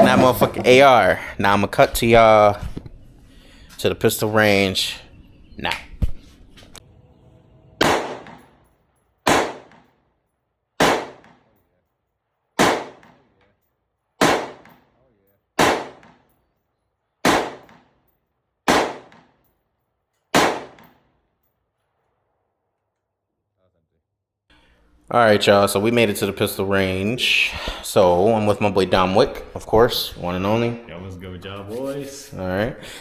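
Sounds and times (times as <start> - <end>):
gunshots: 7.8 - 8.6, 9.2 - 10.0, 10.8 - 11.5, 12.6 - 13.2, 14.2 - 14.8, 15.6 - 16.2, 17.2 - 17.9, 18.7 - 19.3, 20.4 - 21.0.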